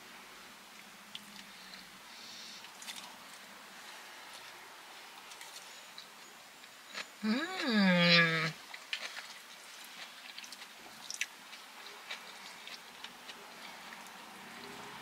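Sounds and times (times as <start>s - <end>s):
person chewing food: 8.4s - 14.9s.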